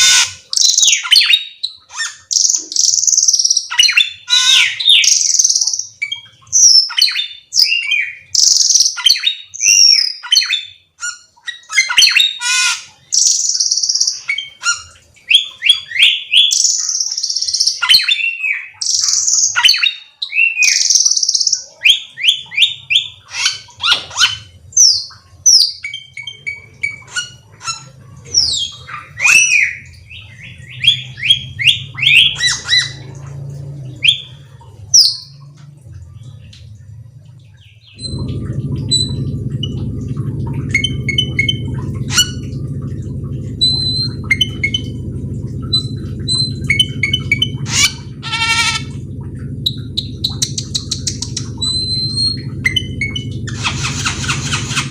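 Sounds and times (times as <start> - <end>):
low steady hum: 20.7 - 54.9.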